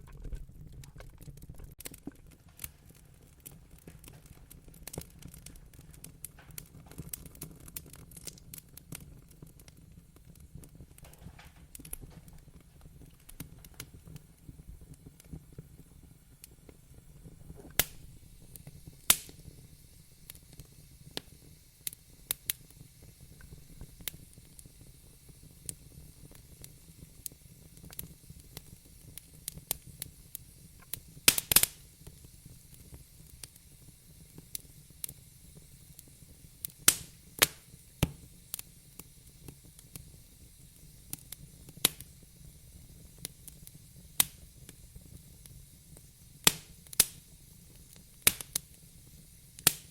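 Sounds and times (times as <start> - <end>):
wood fire crackling and popping: 0.0 - 49.9.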